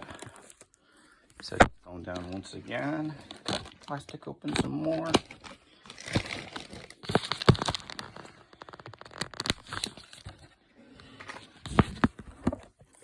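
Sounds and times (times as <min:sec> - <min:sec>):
plastic wrap tearing and crinkling: 0:01.4 - 0:10.5.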